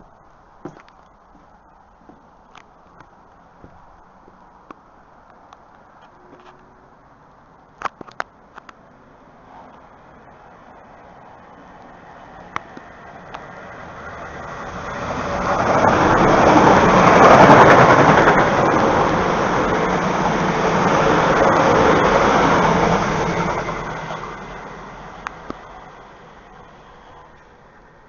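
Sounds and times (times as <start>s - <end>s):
train passing at speed: 8.9s - 28.0s.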